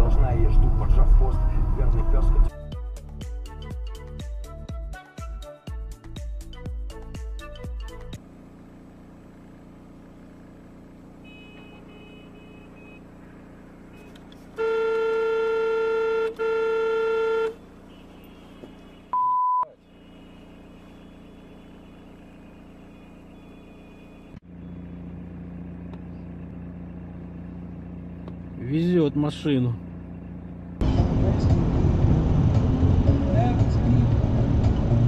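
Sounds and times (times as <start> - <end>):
road and engine noise: 0.0 - 2.6, 6.1 - 35.0
vehicle horn blasts: 11.1 - 13.2, 13.9 - 24.4
short high beep: 19.1 - 19.8.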